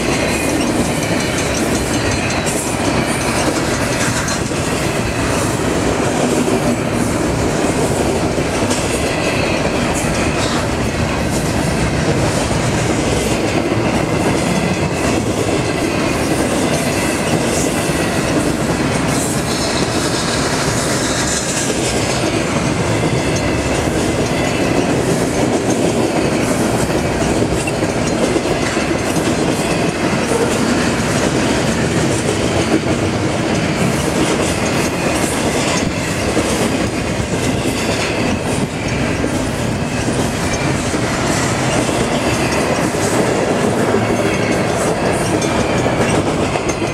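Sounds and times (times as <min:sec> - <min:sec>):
freight train wheels rumbling on rails: 0:00.0 - 0:46.9.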